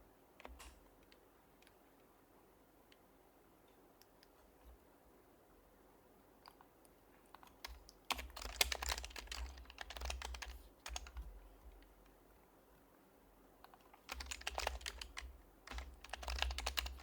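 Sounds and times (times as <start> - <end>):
soft keyboard key presses: 6.4 - 12.1, 13.6 - 17.0.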